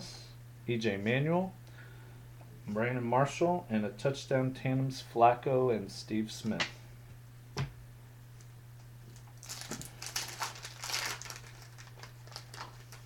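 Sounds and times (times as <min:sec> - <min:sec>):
steady low hum: 0:00.0 - 0:13.0
wrapper being torn and crinkled: 0:09.1 - 0:13.0.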